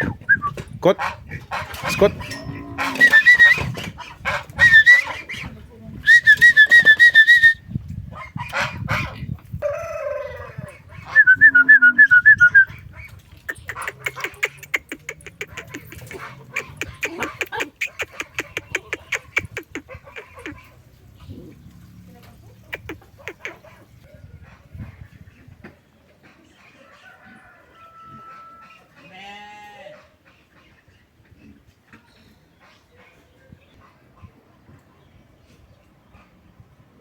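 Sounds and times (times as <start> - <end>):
chickens clucking and calling: 0.0 - 21.5, 22.2 - 29.2.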